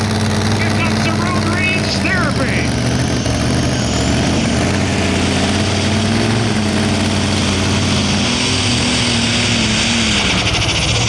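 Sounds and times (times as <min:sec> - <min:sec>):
vehicle engine running under load: 0:00.0 - 0:11.0.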